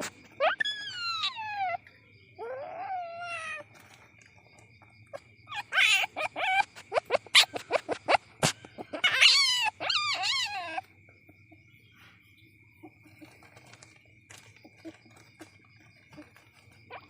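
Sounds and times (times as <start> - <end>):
young civet crying: 0.3 - 3.8, 5.1 - 10.9.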